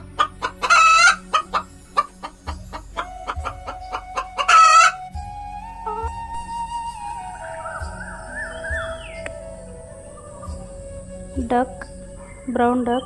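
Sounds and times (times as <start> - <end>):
hen clucking: 0.0 - 5.0
background music: 0.0 - 13.0
hen squawking: 0.1 - 5.1.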